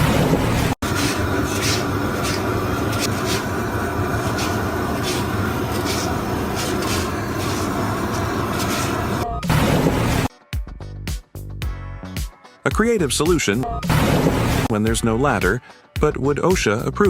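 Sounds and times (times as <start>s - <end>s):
heavy machinery humming: 0.0s - 10.3s.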